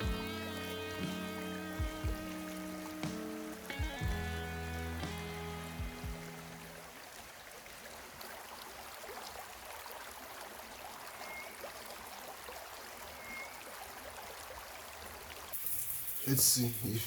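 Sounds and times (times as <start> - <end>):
running water hiss: 0.0 - 17.0
faint chirps: 11.2 - 11.6, 13.1 - 13.6.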